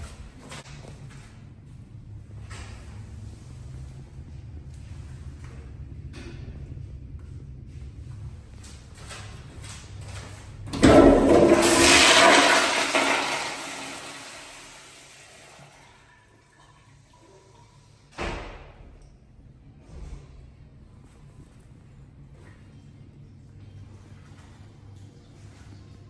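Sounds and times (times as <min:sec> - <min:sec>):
toilet flushing: 0:10.7 - 0:17.9.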